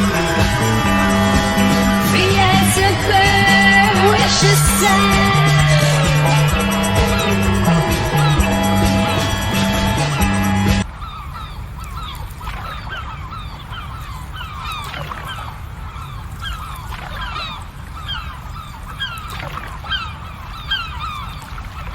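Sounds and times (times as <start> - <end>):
steady low rumble: 0.0 - 10.8
flock of birds calling: 0.0 - 21.9.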